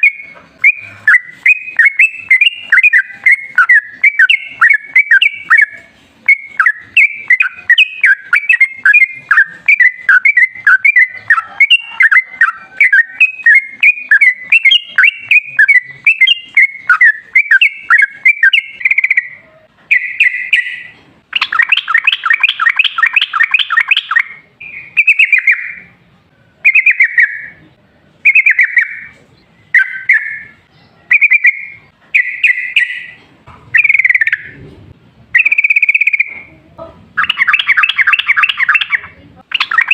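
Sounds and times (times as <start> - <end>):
bird singing bubbly chirps: 0.0 - 25.8, 28.2 - 34.6, 37.2 - 39.9.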